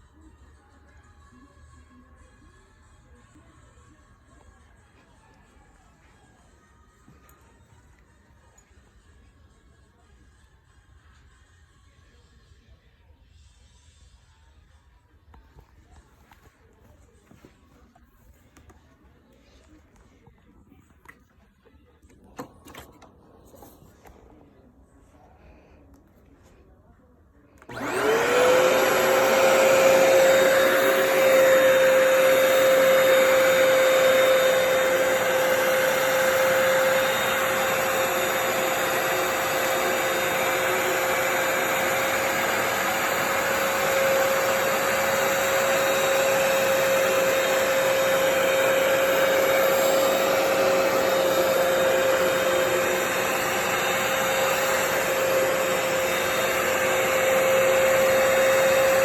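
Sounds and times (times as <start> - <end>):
carpet cleaner motor whining: 27.6 - 59.0.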